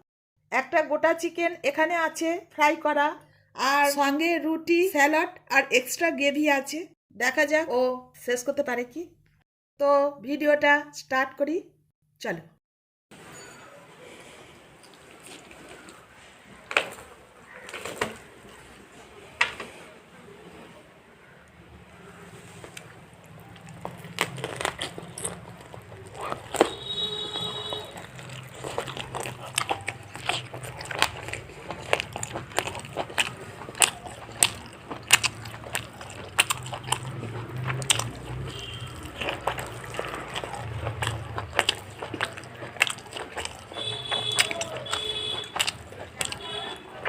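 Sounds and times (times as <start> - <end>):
person eating crunchy food: 14.0 - 19.8, 21.9 - 47.0.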